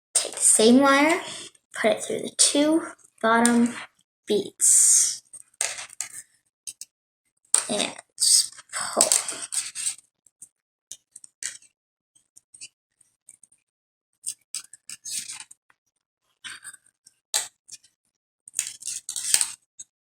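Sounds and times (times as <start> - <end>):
wire scraping through beads: 8.3 - 10.0, 18.6 - 19.6.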